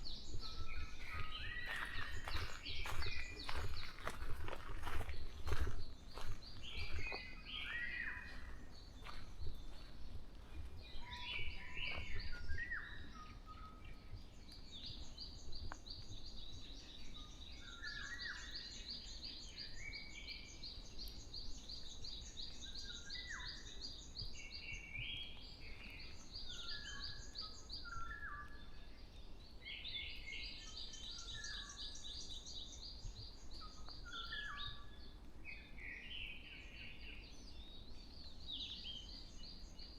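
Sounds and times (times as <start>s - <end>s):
birds chirping and whistling: 0.0s - 39.9s.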